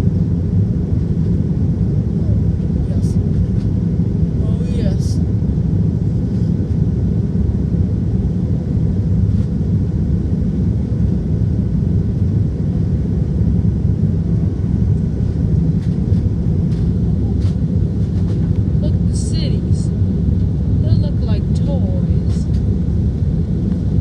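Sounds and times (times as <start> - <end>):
airliner cabin engine rumble: 0.0 - 24.0.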